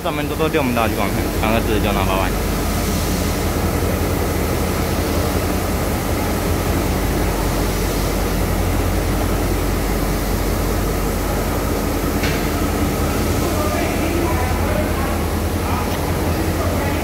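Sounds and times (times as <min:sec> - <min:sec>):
standing train humming and hissing: 0:00.0 - 0:17.0.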